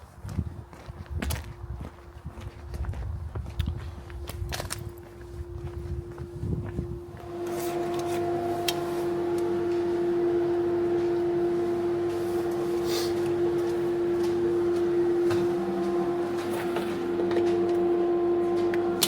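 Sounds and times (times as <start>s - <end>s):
machine humming: 4.2s - 19.0s.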